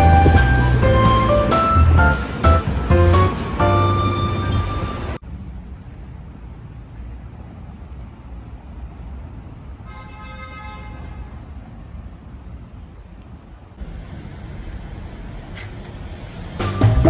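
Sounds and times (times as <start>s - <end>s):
vehicle horn: 0.0s - 5.2s, 9.9s - 11.2s
street traffic rumble: 0.0s - 17.0s.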